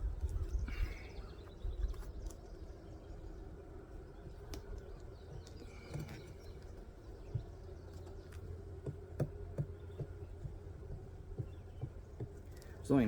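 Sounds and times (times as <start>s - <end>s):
knocks of hive boxes: 8.7s - 12.5s.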